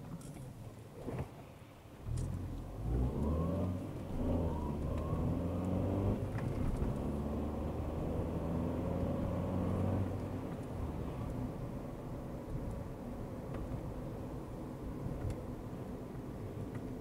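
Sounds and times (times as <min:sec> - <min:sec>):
car engine accelerating: 0:02.0 - 0:11.4.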